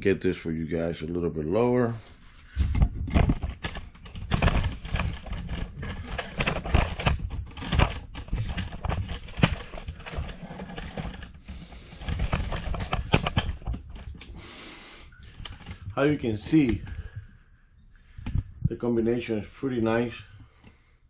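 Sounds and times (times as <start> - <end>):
camera handling knocks and rubbing: 2.6 - 14.2.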